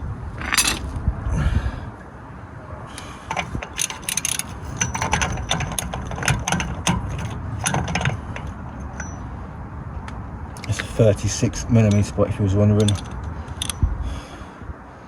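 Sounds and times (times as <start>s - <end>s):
ratchet wrench clicking: 3.3s - 7.8s.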